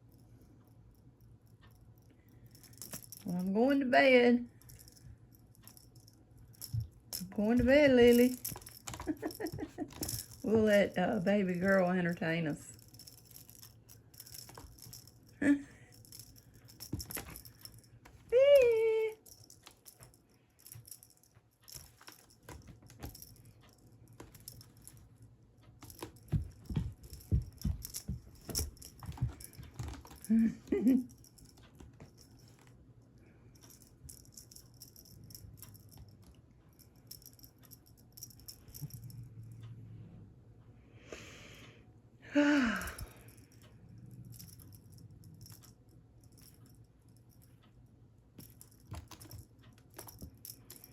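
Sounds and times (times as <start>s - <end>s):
cat toy rattling and jingling: 1.5s - 32.7s, 33.5s - 39.3s, 42.8s - 47.5s, 48.4s - 50.9s
soft thumps: 25.8s - 30.3s.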